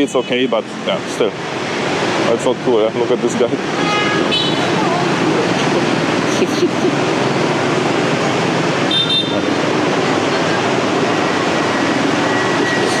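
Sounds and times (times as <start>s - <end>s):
busy city street traffic: 0.0s - 13.0s
high horn beep: 3.7s - 4.8s, 8.9s - 9.5s, 11.3s - 13.0s.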